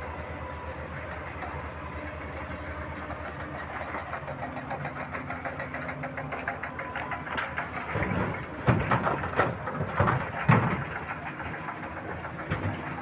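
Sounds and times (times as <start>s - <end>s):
excavator engine running: 0.0s - 13.0s
rocks crashing into truck bed: 7.8s - 11.2s.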